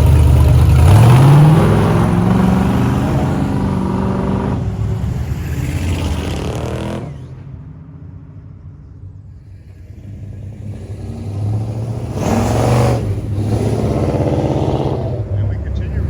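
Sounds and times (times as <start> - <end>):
truck engine accelerating: 0.0 - 16.0.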